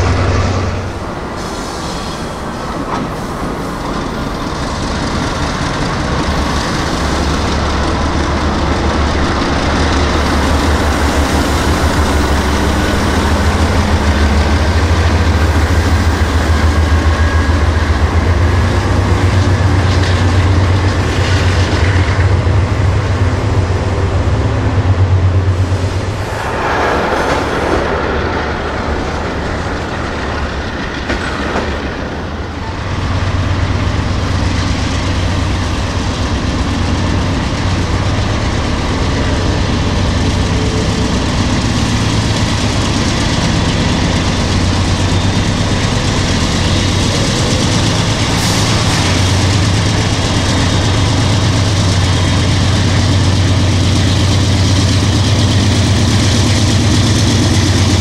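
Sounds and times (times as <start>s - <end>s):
train cars rumbling on rails: 0.0s - 58.0s.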